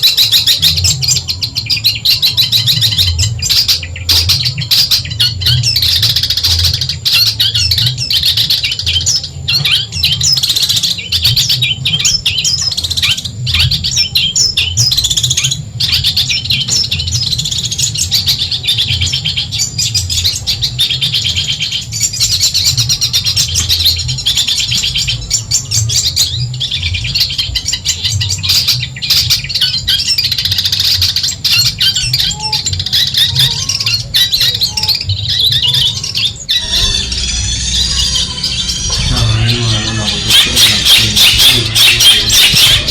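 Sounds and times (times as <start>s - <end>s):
shrike singing rapid chattering song: 0.0s - 42.9s
steady low hum: 36.3s - 42.9s.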